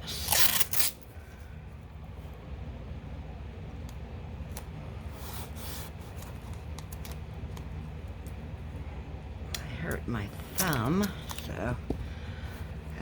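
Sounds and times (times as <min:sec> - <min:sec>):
low steady hum: 0:00.0 - 0:13.0
tape clicks and rustles: 0:06.1 - 0:08.4.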